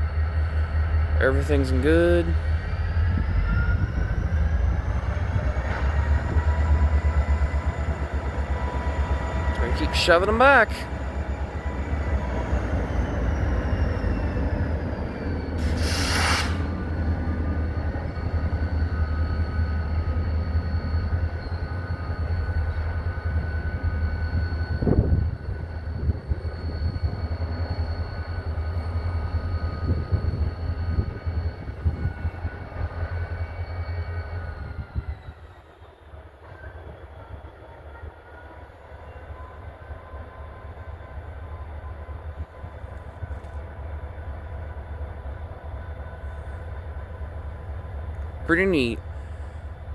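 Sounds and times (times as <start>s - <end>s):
diesel locomotive engine rumble: 0.0s - 49.9s
short hiss: 15.6s - 16.7s.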